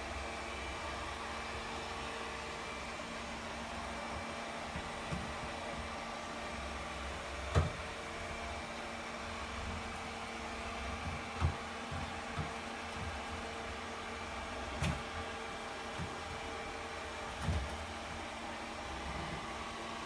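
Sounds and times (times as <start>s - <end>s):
vacuum knocking against chair legs: 11.0s - 13.3s.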